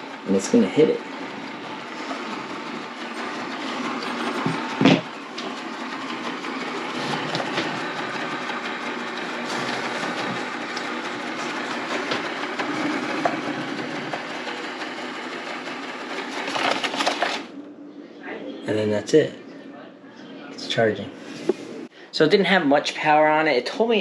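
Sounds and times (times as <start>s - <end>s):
robot vacuum whirring rattle: 0.0s - 17.5s
loud knock: 4.4s - 5.1s.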